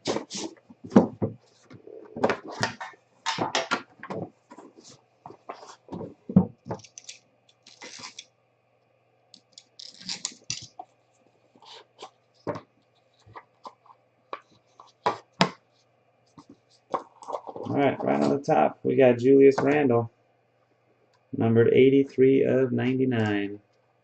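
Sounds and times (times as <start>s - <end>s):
wrapper rustling and tearing: 6.8s - 8.2s, 9.7s - 10.8s.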